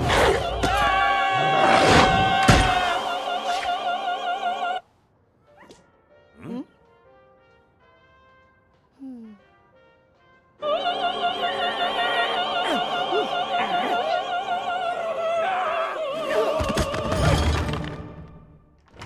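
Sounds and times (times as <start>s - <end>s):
operatic singing: 0.0s - 4.8s, 10.6s - 18.2s.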